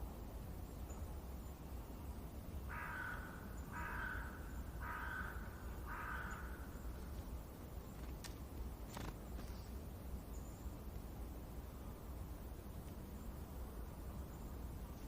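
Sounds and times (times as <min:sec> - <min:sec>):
bird calling: 0:02.7 - 0:07.1.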